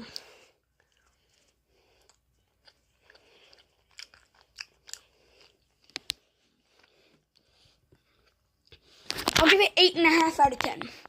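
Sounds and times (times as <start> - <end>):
person chewing candy: 0.0 - 8.8.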